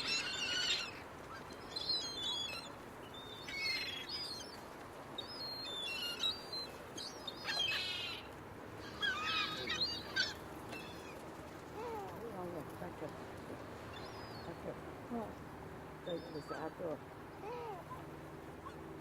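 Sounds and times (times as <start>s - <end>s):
gulls calling: 0.0s - 19.0s.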